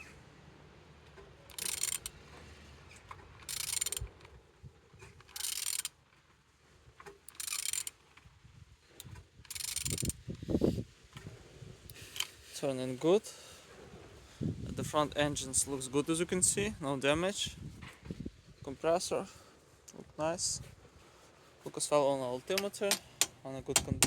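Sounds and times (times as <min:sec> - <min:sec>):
ratchet wrench rasping: 0:01.5 - 0:02.1, 0:03.4 - 0:04.1, 0:05.3 - 0:06.0, 0:07.3 - 0:08.0, 0:09.4 - 0:10.2, 0:22.5 - 0:24.0.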